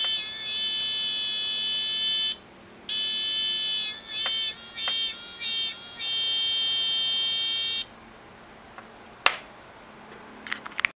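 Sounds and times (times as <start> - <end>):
cicada machine buzzing: 0.0 - 8.2.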